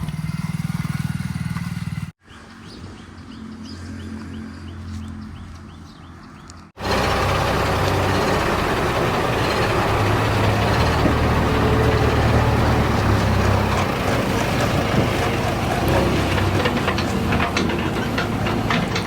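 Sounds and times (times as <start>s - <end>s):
heavy diesel engine running: 6.8s - 19.0s.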